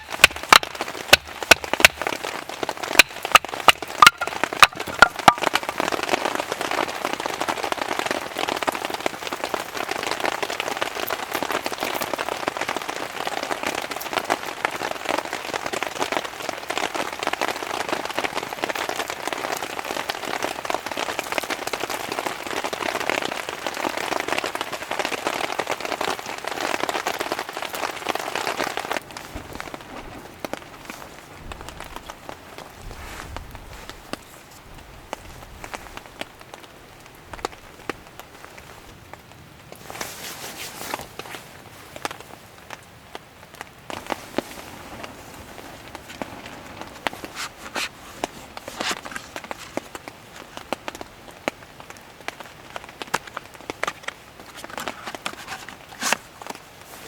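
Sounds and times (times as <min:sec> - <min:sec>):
sharp knocks: 0:00.0 - 0:02.2, 0:03.0 - 0:05.5
steady rain: 0:00.0 - 0:57.0.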